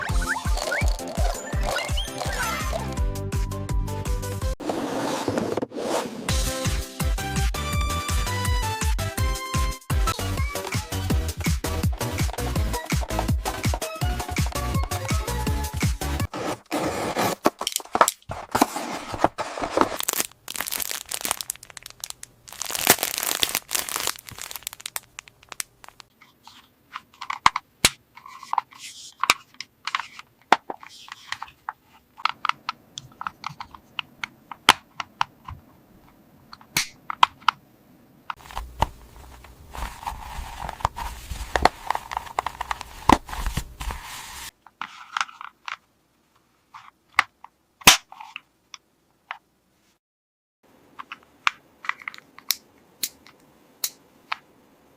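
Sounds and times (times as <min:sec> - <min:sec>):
plastic packaging tearing and crinkling: 0:17.2 - 0:26.1.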